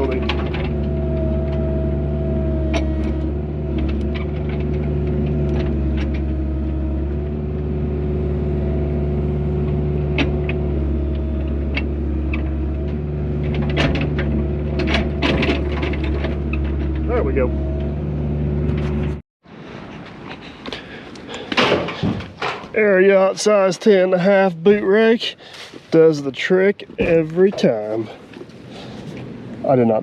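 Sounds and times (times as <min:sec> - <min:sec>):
metal clanks and scrapes: 0:00.0 - 0:01.9, 0:02.5 - 0:06.6, 0:10.2 - 0:17.9
excavator diesel engine running: 0:00.0 - 0:19.2.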